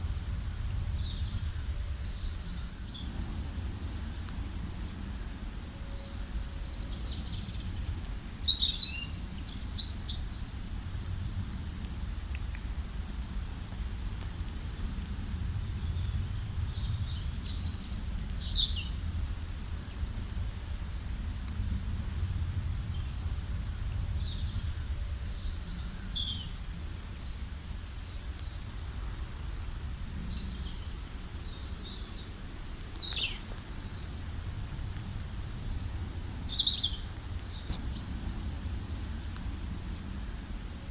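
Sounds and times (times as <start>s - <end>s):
steady low rumble: 0.0s - 27.0s, 30.1s - 40.9s
wild birds chirping: 0.1s - 10.8s, 35.2s - 40.9s.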